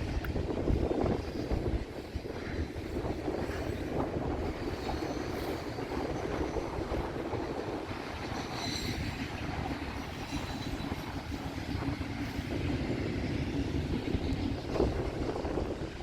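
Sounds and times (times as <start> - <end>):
train wheels rumbling on track: 0.0 - 16.0
high wheel squeal: 4.6 - 6.7, 8.1 - 11.5.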